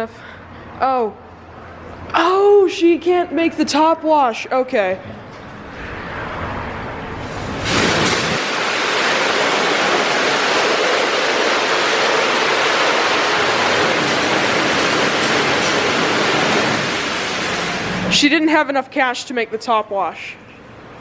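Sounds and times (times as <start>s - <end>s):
car wash spray jets: 6.0s - 18.3s.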